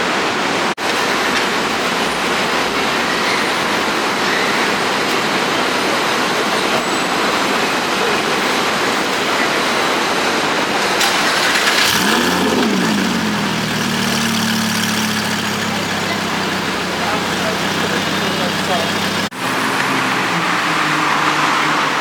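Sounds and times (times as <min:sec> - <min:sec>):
street traffic: 0:00.0 - 0:22.0
car engine starting and idling: 0:10.8 - 0:21.3.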